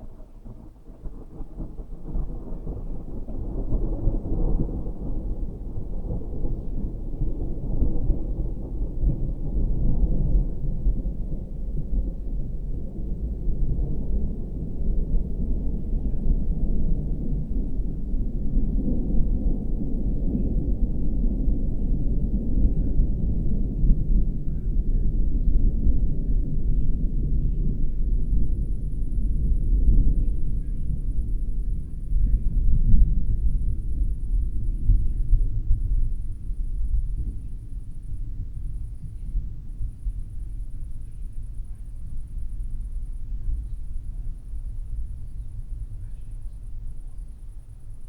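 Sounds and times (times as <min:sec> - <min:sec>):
rolling thunder rumble: 0:00.0 - 0:48.0.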